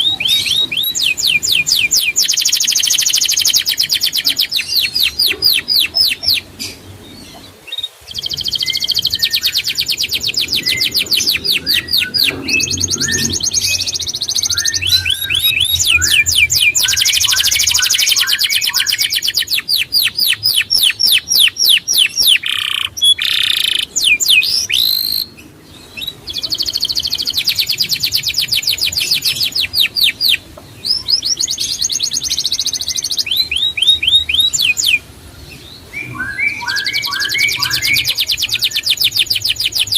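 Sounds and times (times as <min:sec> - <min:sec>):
songbird trilling: 0:00.0 - 0:35.0, 0:35.9 - 0:39.9.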